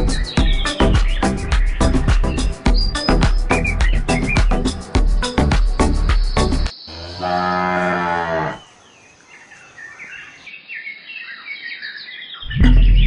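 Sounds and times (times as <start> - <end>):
birds chirping: 0.0 - 13.0
cow mooing: 6.9 - 8.6.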